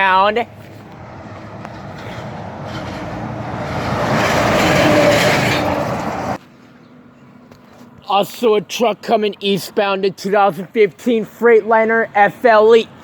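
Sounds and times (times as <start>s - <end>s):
truck driving past: 0.0s - 6.4s.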